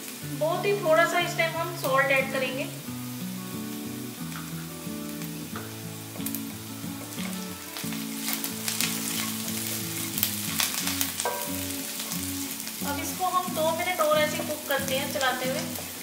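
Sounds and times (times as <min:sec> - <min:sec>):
food sizzling in oil: 0:00.0 - 0:16.0
soft background music: 0:00.0 - 0:16.0
wooden spatula scraping a pan: 0:07.1 - 0:12.2.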